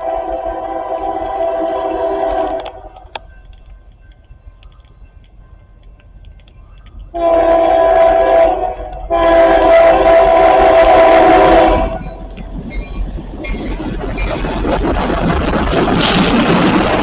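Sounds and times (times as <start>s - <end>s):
train air horn blasts: 0.0s - 3.0s, 7.1s - 12.2s.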